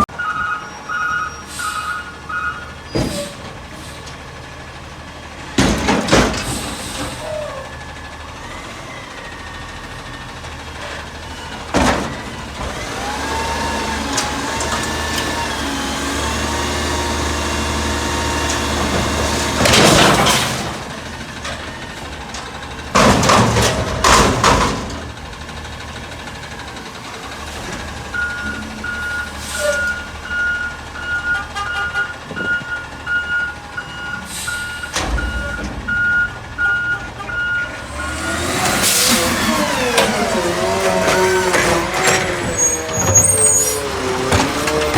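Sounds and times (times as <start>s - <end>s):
garbage truck engine: 0.0s - 44.9s
reversing beeper: 28.1s - 38.4s.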